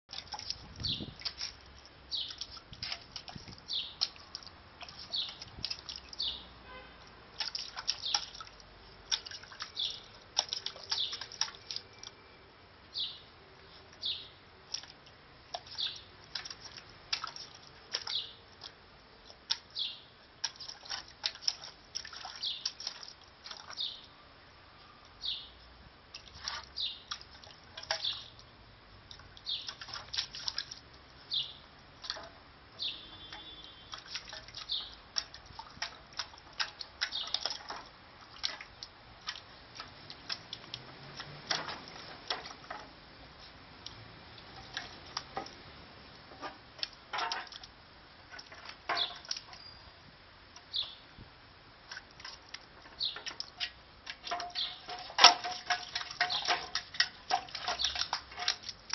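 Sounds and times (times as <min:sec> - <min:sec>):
small birds chirping: 0:00.1 - 0:06.6, 0:07.4 - 0:12.3, 0:12.9 - 0:14.9, 0:15.6 - 0:24.2, 0:24.8 - 0:25.7, 0:26.3 - 0:28.5, 0:29.1 - 0:31.7, 0:32.8 - 0:35.5, 0:37.0 - 0:37.8, 0:48.9 - 0:50.0, 0:50.6 - 0:51.2, 0:52.8 - 0:53.4, 0:54.2 - 0:56.7, 0:57.4 - 0:58.2
water splashing in metal tray: 0:00.1 - 0:12.1, 0:14.0 - 0:24.1, 0:26.1 - 0:28.5, 0:29.1 - 0:43.1, 0:43.8 - 0:49.6, 0:51.8 - 0:58.9.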